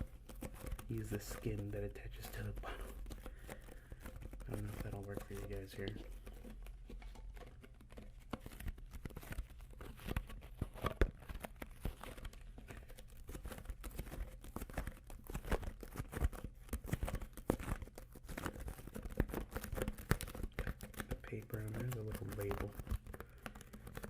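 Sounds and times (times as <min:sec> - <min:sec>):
plastic bottle label crinkling: 0:00.0 - 0:24.0.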